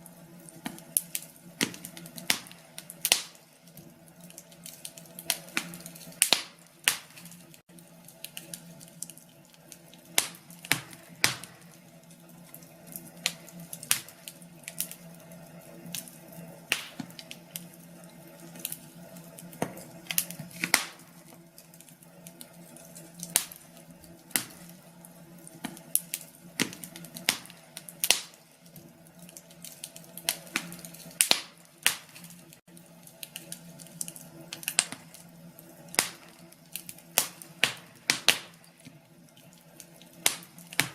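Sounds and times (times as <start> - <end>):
faint steady hum: 0.0 - 40.9
wood fire crackling: 0.0 - 40.9.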